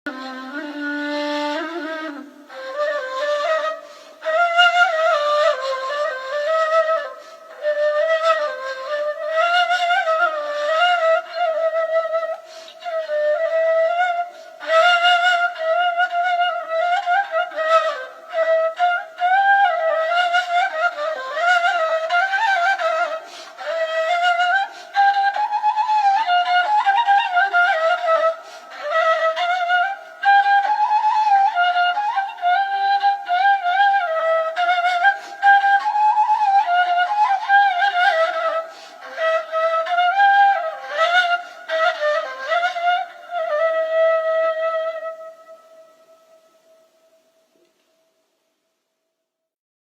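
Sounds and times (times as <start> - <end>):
solo flute melody: 0.0 - 47.7.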